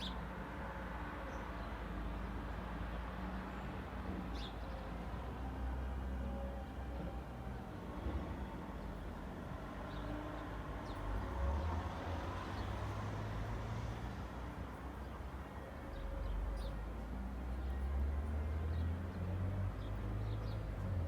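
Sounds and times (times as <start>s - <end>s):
hum of cars: 0.0s - 21.0s.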